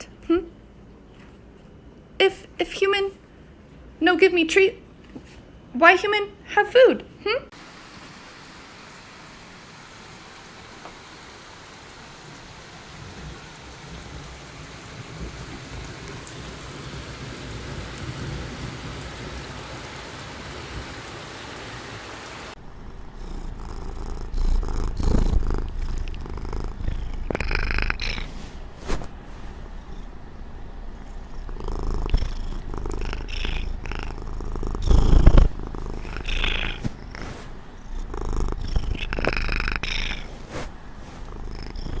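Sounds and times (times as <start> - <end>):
hissy background noise: 0.0 - 22.6, 25.6 - 42.0
cat purring: 22.8 - 28.5, 29.5 - 42.0.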